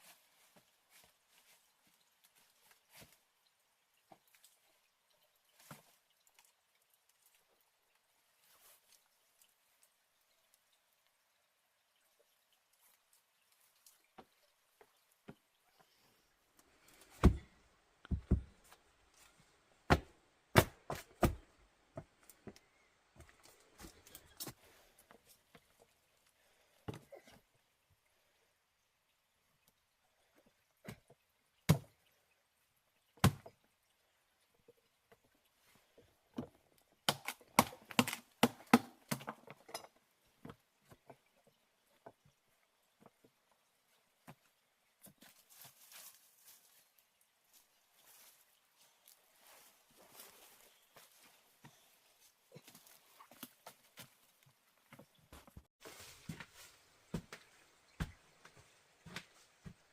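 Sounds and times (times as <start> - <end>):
sharp knocks or thuds: 17.2 - 17.5, 18.1 - 18.6.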